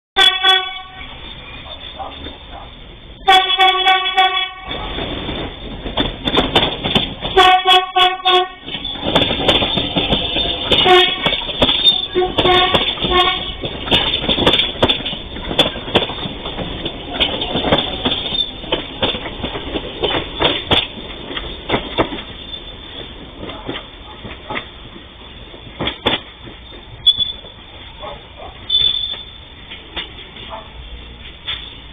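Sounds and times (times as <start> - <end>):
train horn: 0.2 - 1.2, 3.2 - 4.9, 7.3 - 8.8, 10.7 - 13.8
train wheels clattering over rail joints: 4.6 - 31.9.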